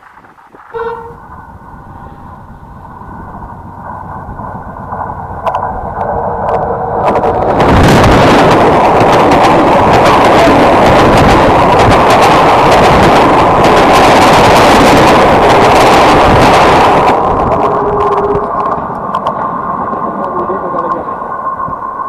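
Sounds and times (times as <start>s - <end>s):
train passing at speed: 0.0s - 22.0s
wheels clattering on rails: 0.0s - 22.0s
wind buffeting microphone: 0.0s - 22.0s.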